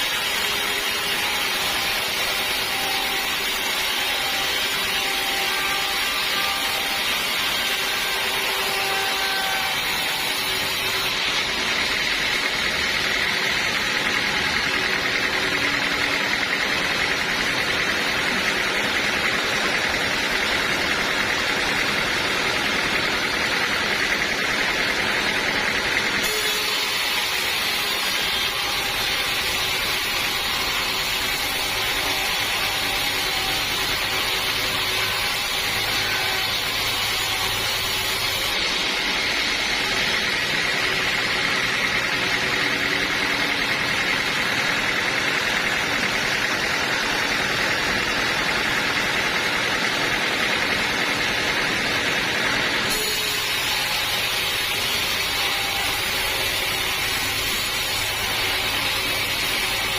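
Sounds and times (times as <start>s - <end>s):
band sawmill running: 0.0s - 59.9s.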